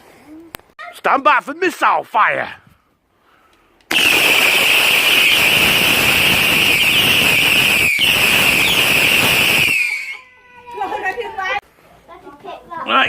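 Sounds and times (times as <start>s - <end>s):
firework hissing and whistling: 3.9s - 10.3s.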